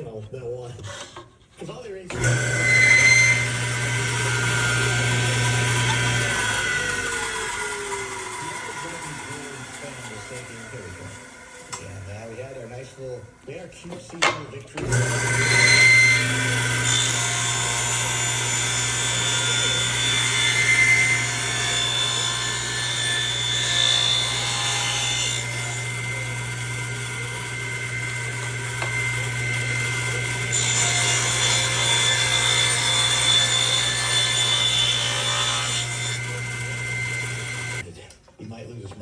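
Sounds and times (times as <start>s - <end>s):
orbital sander rubbing on wood: 2.1s - 11.4s, 36.2s - 37.8s.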